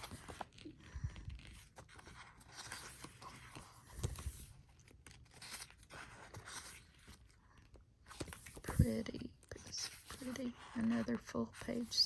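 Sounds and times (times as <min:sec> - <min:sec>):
paper rustling and scraping: 0:00.0 - 0:12.0.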